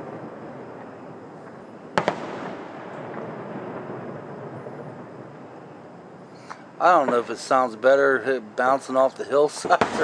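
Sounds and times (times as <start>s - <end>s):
firework shell bursting: 0.0s - 3.9s.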